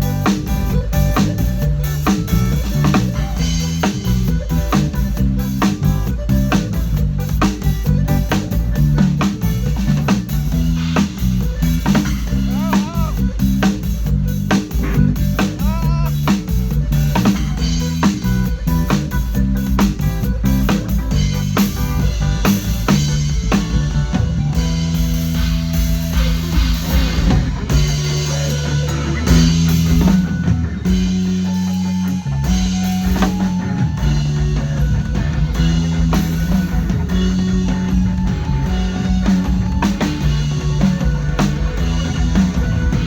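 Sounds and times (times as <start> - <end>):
band playing rock music: 0.0 - 43.0
bass guitar notes: 0.0 - 43.0.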